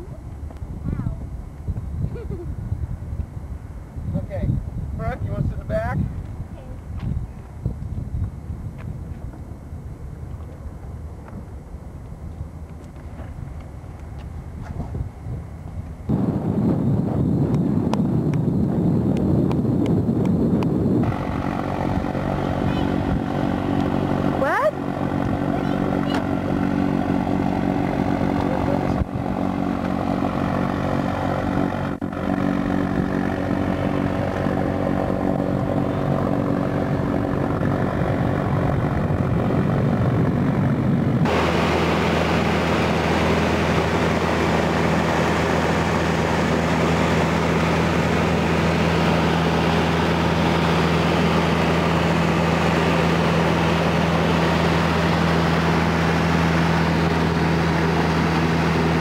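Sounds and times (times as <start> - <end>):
propeller airplane engine drone: 0.0 - 59.0.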